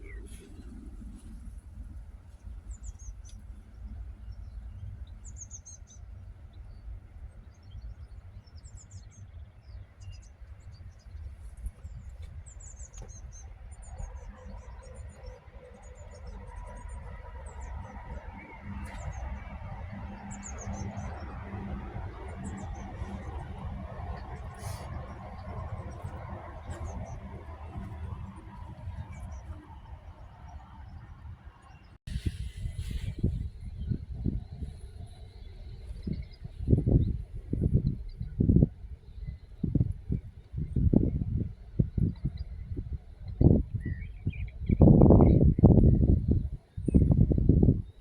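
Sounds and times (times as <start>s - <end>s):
steady low rumble: 0.0s - 48.0s
broad hum: 10.7s - 48.0s.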